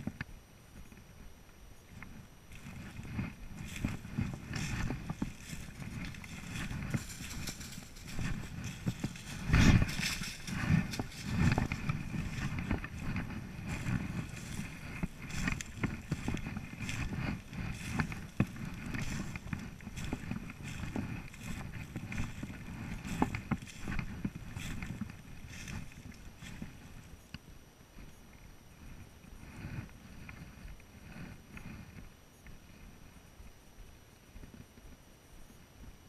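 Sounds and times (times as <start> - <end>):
microphone handling noise: 0.0 - 27.1
crackles and knocks: 0.0 - 33.6
footsteps through undergrowth: 1.9 - 27.2.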